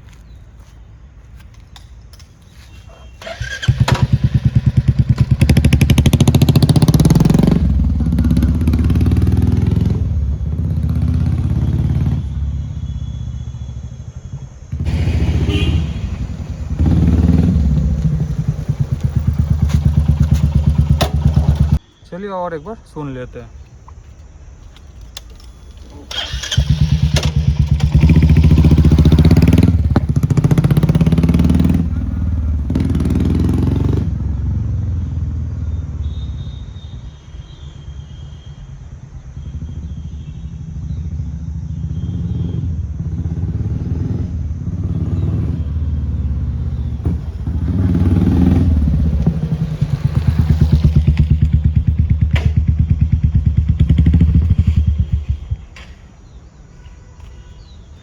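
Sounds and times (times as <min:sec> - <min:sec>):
motorcycle engine thumping: 0:03.2 - 0:11.7, 0:14.4 - 0:21.8, 0:26.1 - 0:33.6, 0:46.3 - 0:56.2.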